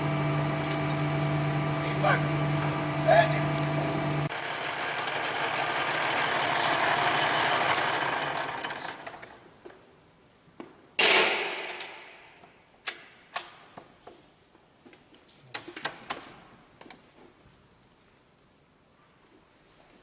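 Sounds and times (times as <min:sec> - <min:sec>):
machine whirring to a stop: 0:00.0 - 0:09.4.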